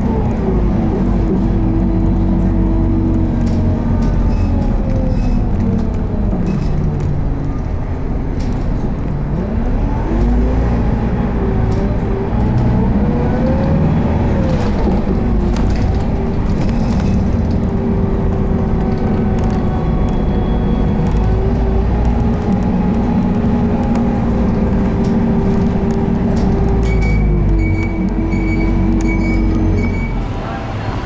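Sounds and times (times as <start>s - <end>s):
bus diesel engine running: 0.0s - 31.0s
low road rumble: 0.0s - 31.0s.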